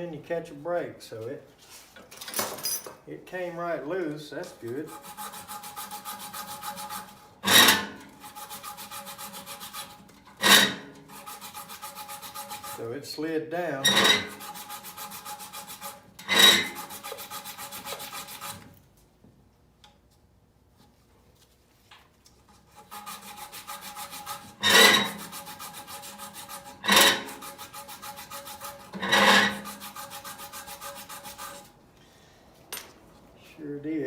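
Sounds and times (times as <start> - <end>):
metallic rasping: 4.6 - 12.9, 13.8 - 18.6, 22.5 - 31.8
metal scrapes: 13.8 - 18.6, 22.5 - 31.8.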